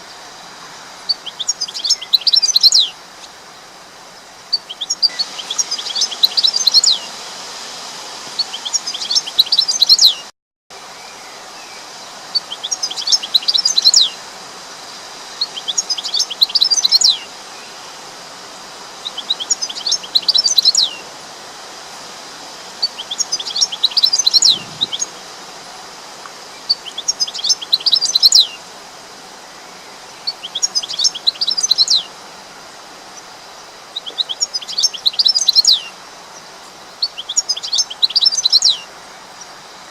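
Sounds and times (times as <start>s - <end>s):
background hiss: 0.0s - 39.9s
bird chirping: 1.1s - 3.4s, 4.1s - 7.1s, 8.4s - 10.3s, 11.0s - 14.2s, 15.4s - 17.9s, 19.0s - 21.0s, 22.8s - 25.3s, 26.5s - 28.6s, 29.4s - 32.1s, 33.1s - 39.6s.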